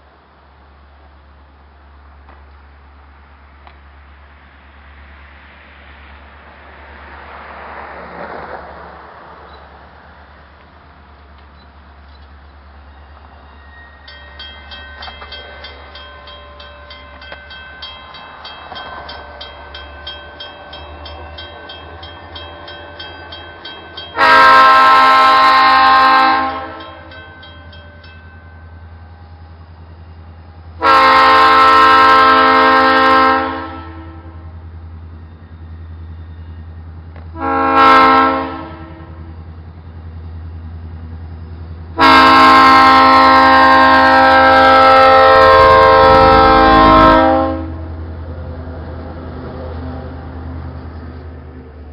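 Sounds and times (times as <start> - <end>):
bell ringing rapidly: 14.0 - 24.2, 26.5 - 28.8
train horn blasts: 24.0 - 27.5, 30.8 - 34.5, 37.3 - 39.3, 42.0 - 48.0.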